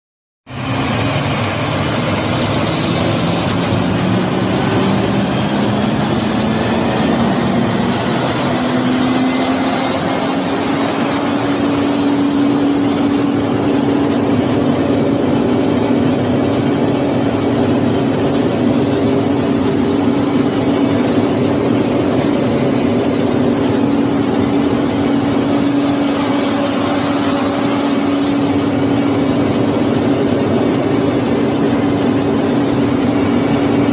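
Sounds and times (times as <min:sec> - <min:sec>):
truck engine running: 0:00.5 - 0:33.9
loud rushing hiss: 0:19.0 - 0:33.4.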